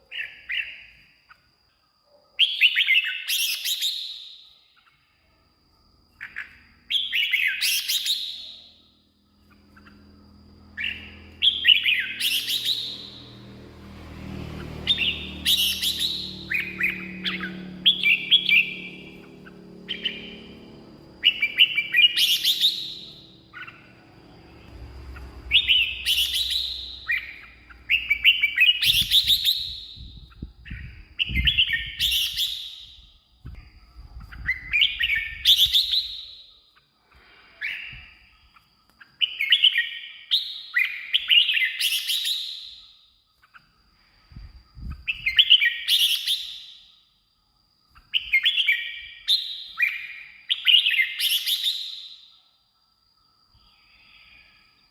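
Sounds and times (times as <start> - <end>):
bird singing whistled phrases: 2.4 - 4.6, 10.7 - 13.3, 14.8 - 20.6, 21.2 - 24.1, 25.2 - 33.7, 34.3 - 36.5, 48.1 - 52.3.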